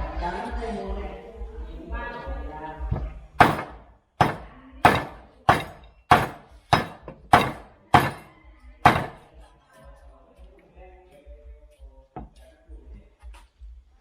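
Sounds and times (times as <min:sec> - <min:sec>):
cleaver chopping meat: 0:03.4 - 0:09.3.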